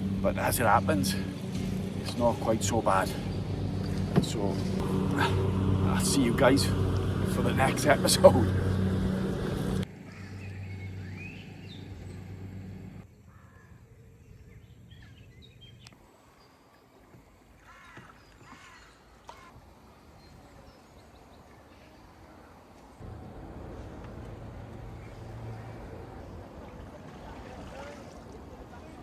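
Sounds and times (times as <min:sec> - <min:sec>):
steady low hum: 0:00.0 - 0:13.0, 0:23.0 - 0:29.0.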